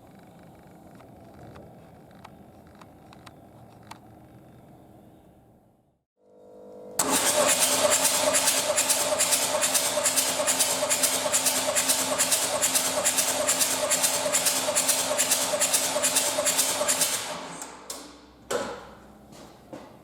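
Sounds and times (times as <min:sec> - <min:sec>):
diesel engine cranking: 0:07.0 - 0:18.0.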